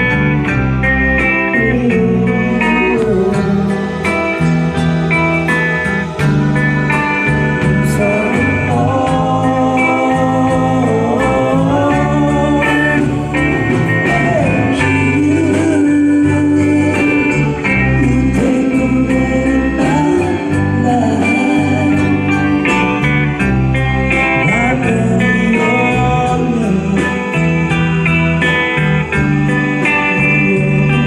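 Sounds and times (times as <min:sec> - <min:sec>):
bass line: 0:00.0 - 0:31.0
guitar: 0:00.0 - 0:31.0
person singing long notes: 0:01.4 - 0:05.1, 0:07.7 - 0:23.4, 0:24.4 - 0:27.8.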